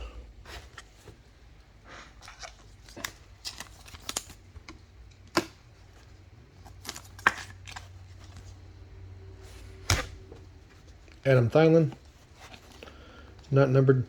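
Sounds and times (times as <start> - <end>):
cards flipped by hand: 2.2 - 5.6, 6.7 - 8.5, 9.5 - 10.4.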